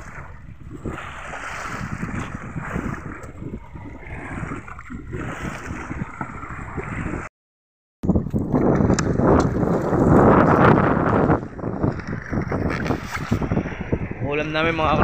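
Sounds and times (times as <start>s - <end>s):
wash of waves: 0.0s - 7.3s
wind buffeting microphone: 0.0s - 7.3s, 8.0s - 15.0s.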